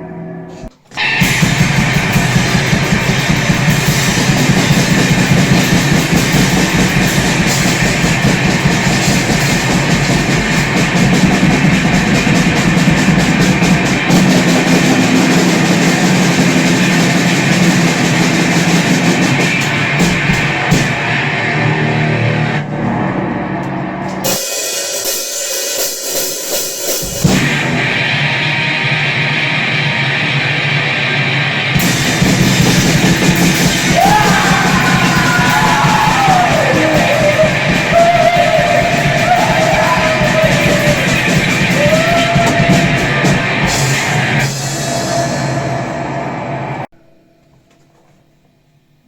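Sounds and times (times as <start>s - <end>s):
distorted electric guitar: 0.0s - 24.6s, 27.0s - 48.0s
drum kit: 0.5s - 22.6s, 23.6s - 48.0s
shouted vocals: 33.8s - 43.6s.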